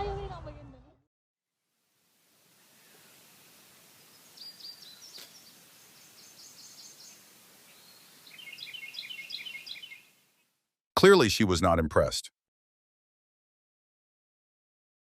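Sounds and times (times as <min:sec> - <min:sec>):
steady hiss: 0:01.7 - 0:10.4
songbird chirping: 0:02.5 - 0:10.6.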